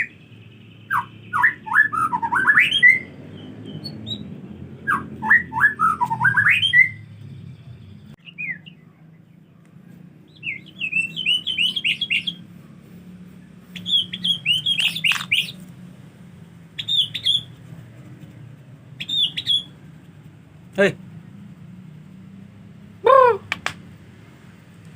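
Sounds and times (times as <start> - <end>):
bird singing whistled notes: 0.0 - 9.5, 10.3 - 12.5, 13.7 - 15.6, 16.7 - 17.6, 18.9 - 19.8.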